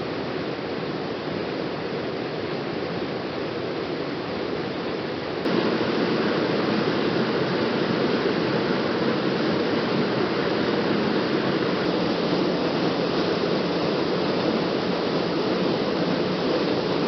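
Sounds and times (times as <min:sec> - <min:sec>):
waterfall rushing: 0:05.4 - 0:17.0.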